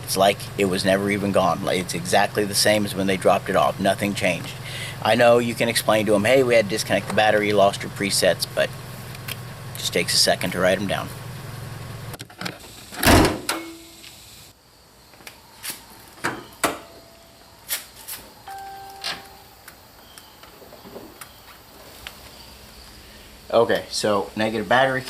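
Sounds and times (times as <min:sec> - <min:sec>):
car door shutting: 0:13.0 - 0:13.6
short beeps: 0:18.5 - 0:19.6.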